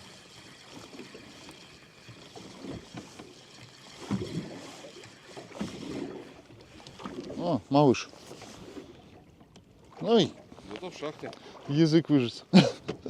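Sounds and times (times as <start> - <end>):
water lapping against boat: 0.0 - 13.0
boat knocking: 12.6 - 13.0.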